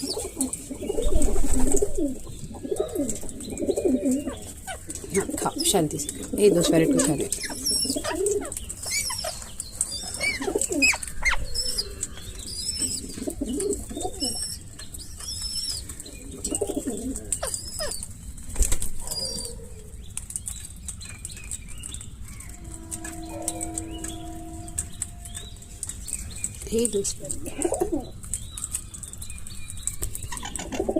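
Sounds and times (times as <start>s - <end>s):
wing flapping: 0.0s - 2.2s
low cooing calls: 0.0s - 18.0s, 22.3s - 26.6s
parrots chirping and whistling: 7.0s - 16.7s
steady tone: 22.3s - 26.4s.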